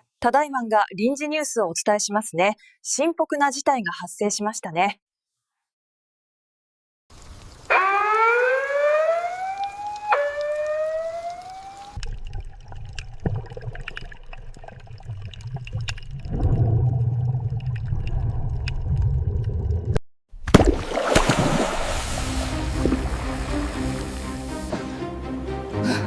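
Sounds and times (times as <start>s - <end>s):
warning siren wailing: 7.7s - 12.0s.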